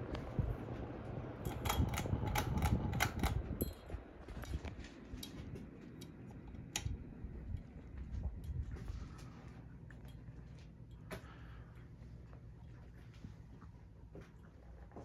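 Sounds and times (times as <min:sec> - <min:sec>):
ceiling fan humming: 0:00.0 - 0:15.0
sharp clicks: 0:01.5 - 0:03.8.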